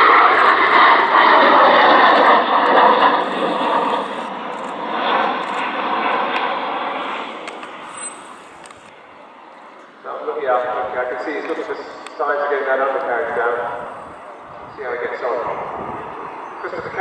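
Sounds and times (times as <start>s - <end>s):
jet aircraft flying past: 0.0s - 17.0s.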